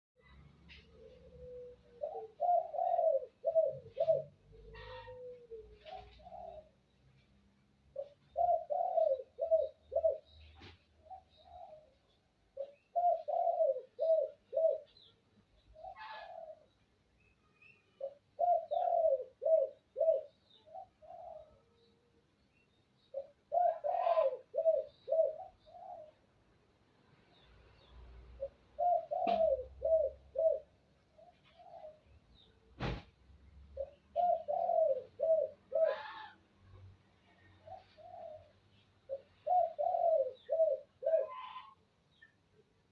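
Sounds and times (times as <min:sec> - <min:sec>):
dove cooing: 0:00.7 - 0:06.9, 0:07.9 - 0:16.9, 0:17.9 - 0:21.9, 0:23.1 - 0:26.4, 0:28.3 - 0:32.5, 0:33.7 - 0:36.4, 0:37.4 - 0:42.2.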